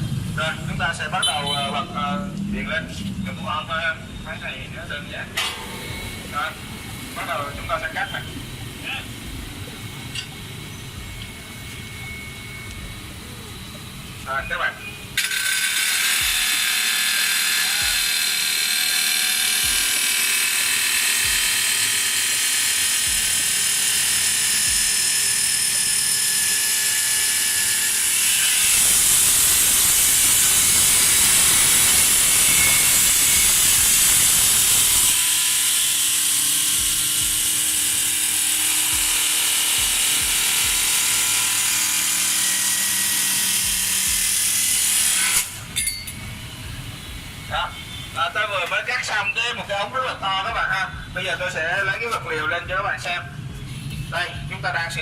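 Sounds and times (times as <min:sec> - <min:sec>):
cutoff saw cutting steel pipe: 0:05.4 - 0:08.7, 0:14.8 - 0:46.2.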